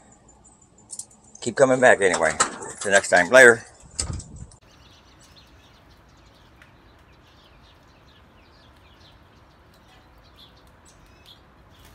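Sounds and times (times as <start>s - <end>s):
faint bird chirps: 4.6s - 11.9s.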